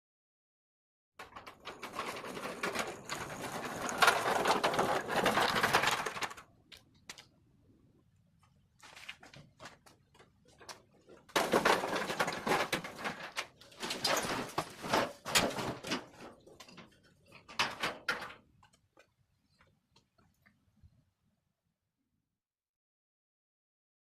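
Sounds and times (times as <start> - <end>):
scraping and clattering: 1.2 - 6.4, 10.6 - 18.5.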